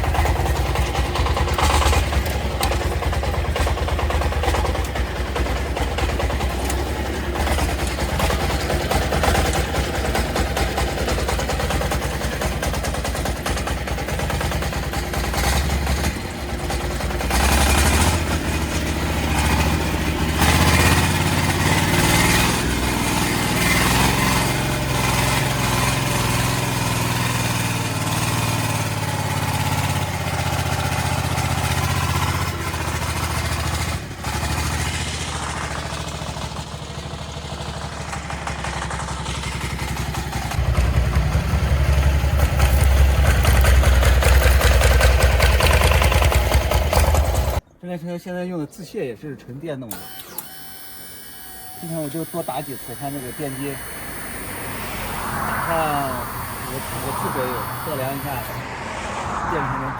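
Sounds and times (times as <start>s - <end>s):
tractor engine running: 0.0s - 47.8s, 49.9s - 59.9s.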